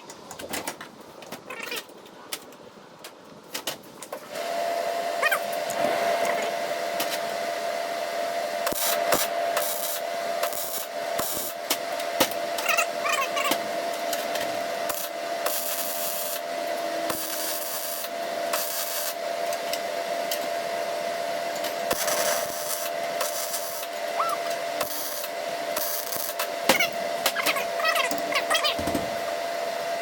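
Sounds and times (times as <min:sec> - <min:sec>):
steady hum: 0:04.6 - 0:19.5.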